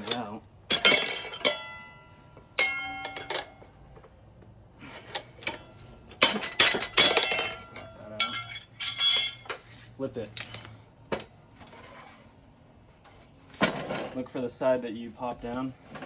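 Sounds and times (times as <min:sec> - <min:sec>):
steel tire irons clanking: 0:00.0 - 0:03.8, 0:04.8 - 0:09.8.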